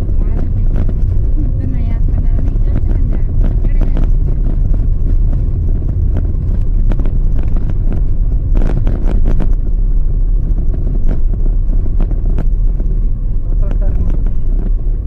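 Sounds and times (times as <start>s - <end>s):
car engine and tyres rumbling: 0.0s - 15.0s
car knocks and rattles over bumps: 0.0s - 15.0s.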